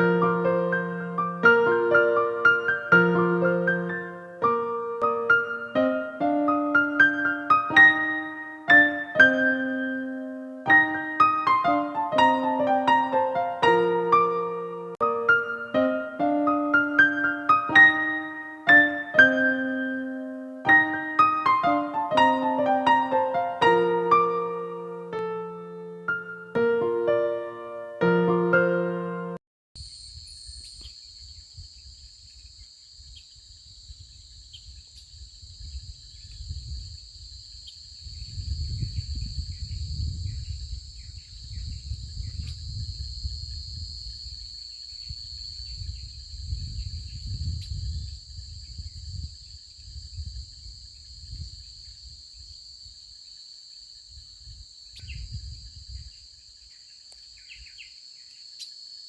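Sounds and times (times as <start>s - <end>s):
faint chirps: 29.8s - 33.4s
insects trilling: 29.8s - 59.0s.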